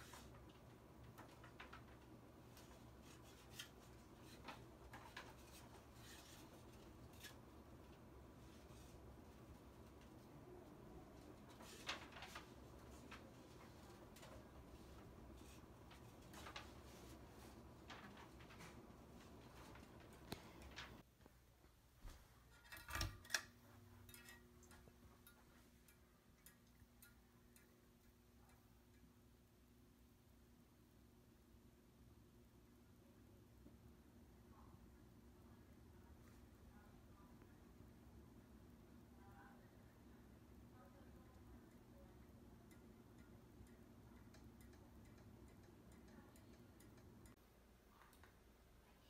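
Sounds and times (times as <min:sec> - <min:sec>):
ceiling fan humming: 0:00.0 - 0:49.0
light ticks of spinning fan: 0:23.2 - 0:30.0, 0:38.4 - 0:47.4.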